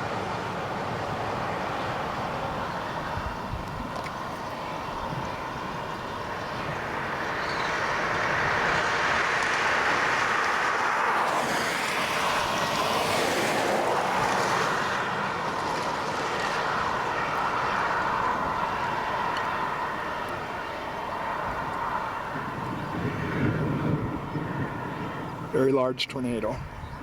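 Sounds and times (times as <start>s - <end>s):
steady rushing noise: 0.0s - 27.0s
vehicle passing by: 5.4s - 25.8s.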